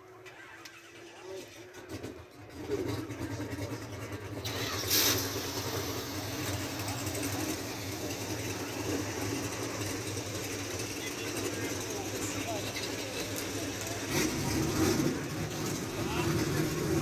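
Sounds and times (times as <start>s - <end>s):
car engine idling: 0.0s - 17.0s
short loud burst of noise: 4.4s - 6.3s.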